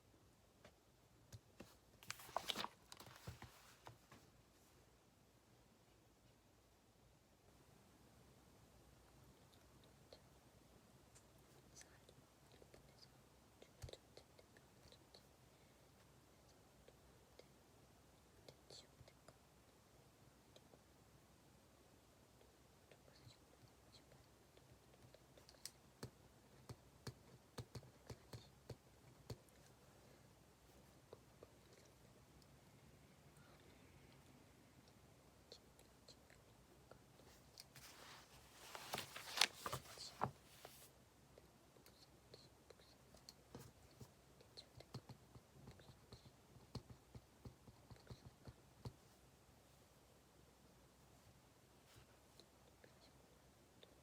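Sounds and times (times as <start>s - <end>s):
faint clicks and taps at a desk: 24.6s - 29.7s, 41.8s - 49.0s.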